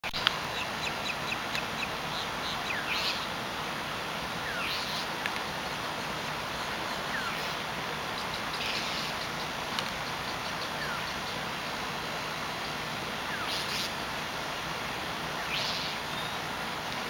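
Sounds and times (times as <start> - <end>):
outdoor hiss: 0.0 - 17.0
small birds chirping: 0.2 - 3.3, 4.4 - 5.1, 5.7 - 11.5, 12.5 - 14.0, 15.3 - 16.5
harsh chattering bird calls: 4.4 - 5.1, 5.9 - 11.4.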